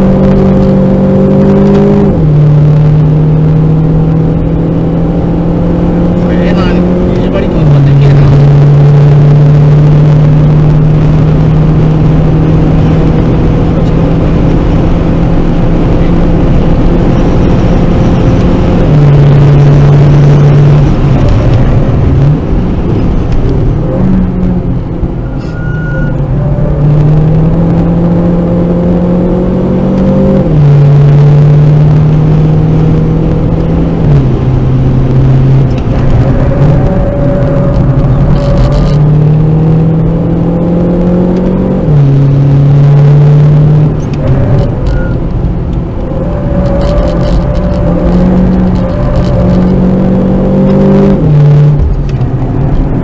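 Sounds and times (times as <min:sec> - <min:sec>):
car engine accelerating: 0:00.0 - 0:53.0.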